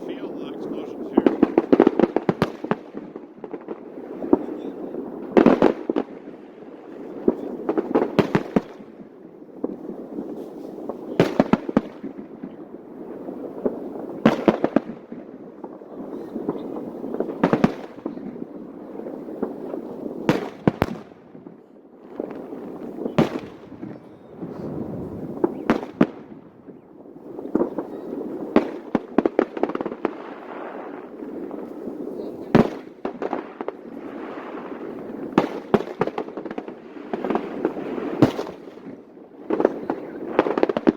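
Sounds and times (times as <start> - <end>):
fireworks bursting: 0.0 - 40.9
murmur of crowd voices: 31.6 - 32.7, 39.6 - 40.5.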